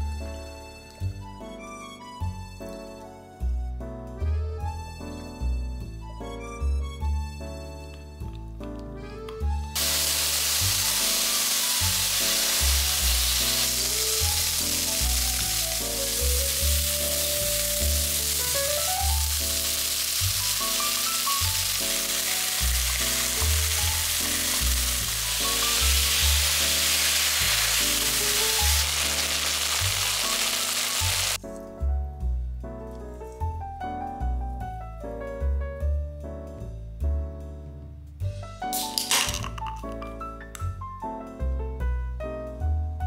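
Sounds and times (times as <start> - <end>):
soft background music: 0.0 - 43.0
meat sizzling in a frying pan: 9.8 - 31.4.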